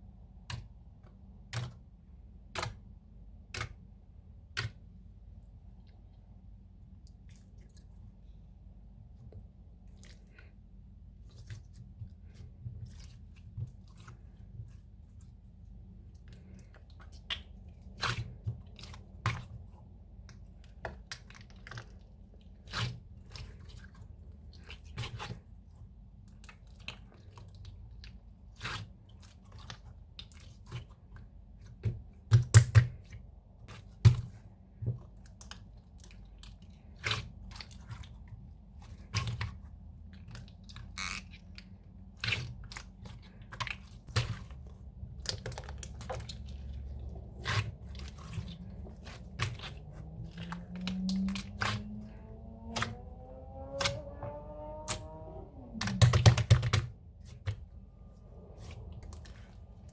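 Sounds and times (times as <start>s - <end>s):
low steady hum: 0.0s - 59.9s
crunching and crackling clicks: 39.1s - 57.8s.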